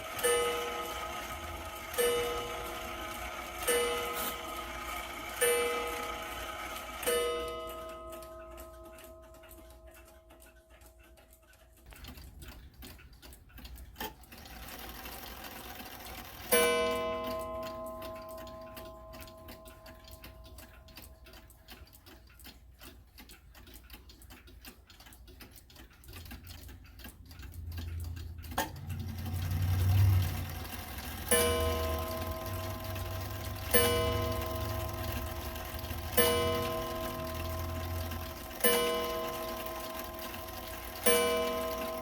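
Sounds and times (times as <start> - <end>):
clock chime strike: 0.0 - 10.1, 16.5 - 20.3, 31.2 - 42.0
clock ticking: 0.0 - 42.0.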